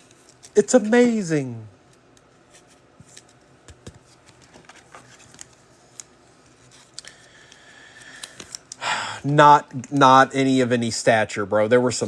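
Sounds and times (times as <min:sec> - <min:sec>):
cards clicking and rustling: 0:01.9 - 0:08.8.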